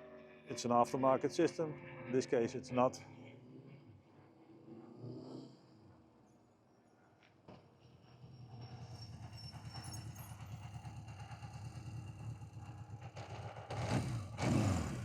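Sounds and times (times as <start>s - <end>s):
motorcycle engine idling: 8.5s - 15.0s.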